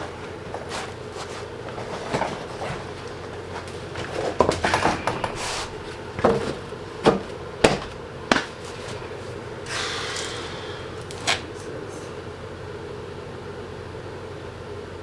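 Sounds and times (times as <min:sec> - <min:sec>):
scraping rustle: 0:00.0 - 0:12.3
knocks of tools and car parts: 0:01.7 - 0:09.2.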